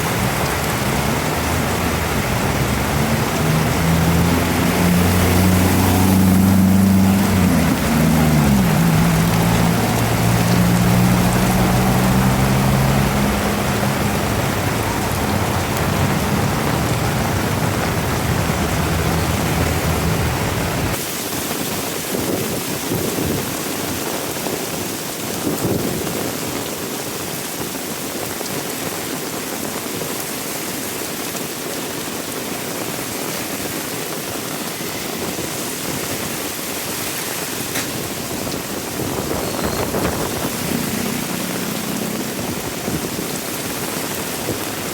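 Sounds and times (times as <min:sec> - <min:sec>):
heavy rain falling: 0:00.0 - 0:44.9
low motor hum: 0:39.6 - 0:42.8.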